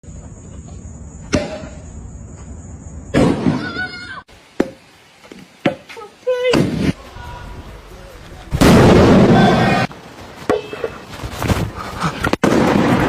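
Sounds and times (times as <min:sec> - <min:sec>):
loud bang: 0:08.5 - 0:09.9.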